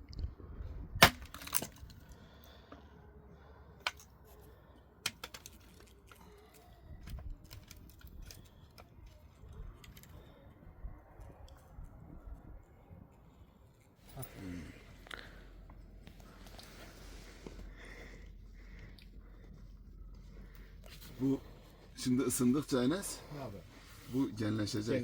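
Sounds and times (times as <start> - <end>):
hard objects knocking and clicking: 5.0 - 5.7.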